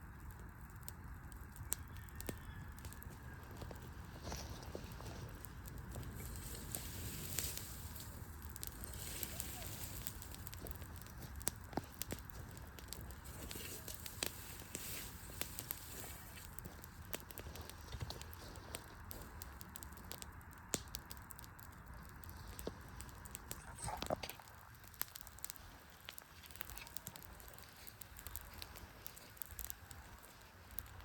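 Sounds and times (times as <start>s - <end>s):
wood fire crackling and popping: 0.0s - 31.0s.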